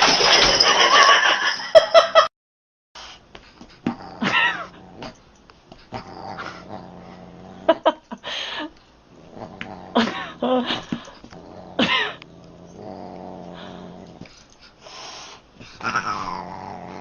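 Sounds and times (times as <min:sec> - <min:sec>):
pet animal growling: 0:03.8 - 0:05.2, 0:05.8 - 0:08.0, 0:09.1 - 0:14.4, 0:15.6 - 0:17.0.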